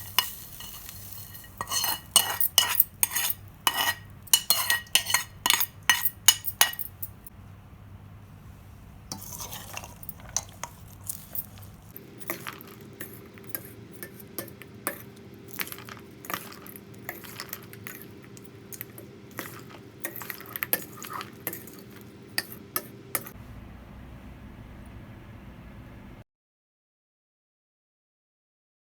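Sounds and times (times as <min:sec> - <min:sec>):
spoon scraping metal vessel: 0:00.0 - 0:07.2, 0:09.1 - 0:23.4
faint steady hum: 0:00.0 - 0:26.2.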